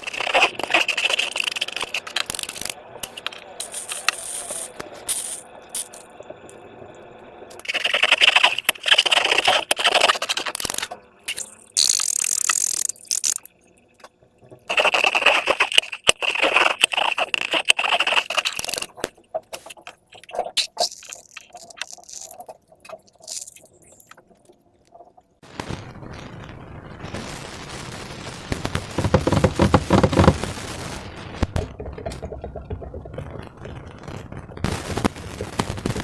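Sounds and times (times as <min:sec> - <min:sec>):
slime crackling and scraping: 0:00.0 - 0:06.0, 0:07.6 - 0:13.5, 0:14.7 - 0:24.2, 0:28.6 - 0:30.6.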